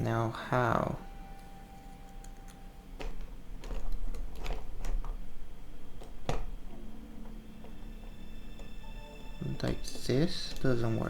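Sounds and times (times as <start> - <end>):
plastic puzzle pieces clicking: 2.9 - 6.8.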